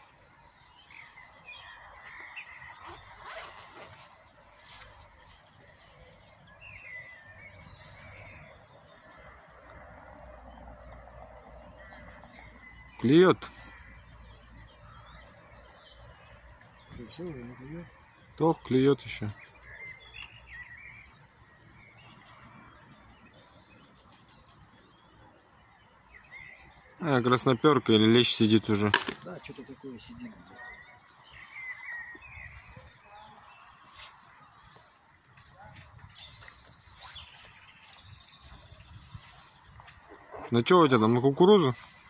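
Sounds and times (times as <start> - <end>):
bird chirps: 0.0 - 42.0
thin bird whistle: 35.5 - 37.5.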